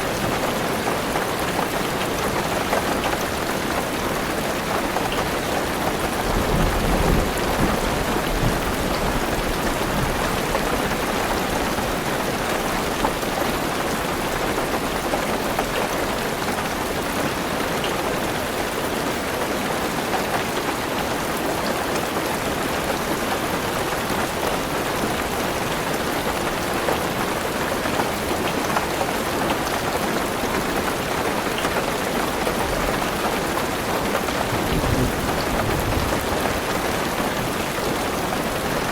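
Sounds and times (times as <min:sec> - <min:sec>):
heavy rain drumming on car roof: 0:00.0 - 0:38.9
low rumble of thunder: 0:06.2 - 0:11.8, 0:34.4 - 0:37.5.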